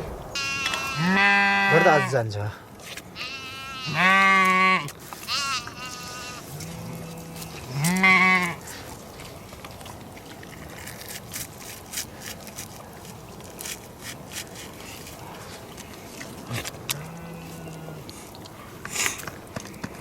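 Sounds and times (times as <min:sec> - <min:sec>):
sheep bleating: 0:00.4 - 0:02.2, 0:03.2 - 0:08.6.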